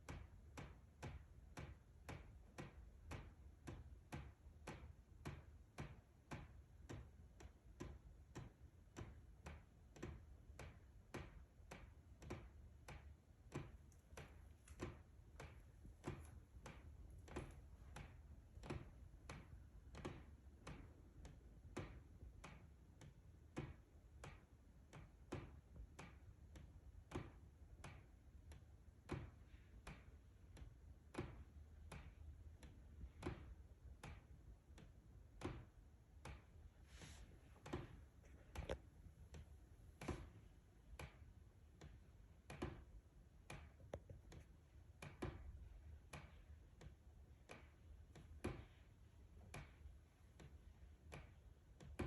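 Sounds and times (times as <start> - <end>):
faint ticking inside wall: 0.0 - 52.0.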